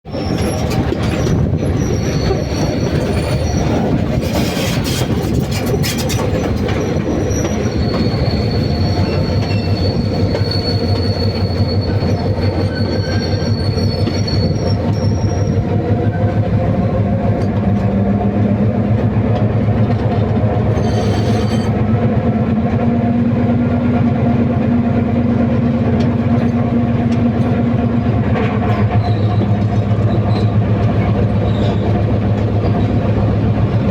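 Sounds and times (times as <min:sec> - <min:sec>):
train wheels rumbling on rails: 0:00.0 - 0:33.9
high wheel squeal: 0:00.1 - 0:16.2, 0:20.6 - 0:21.8, 0:28.8 - 0:33.9.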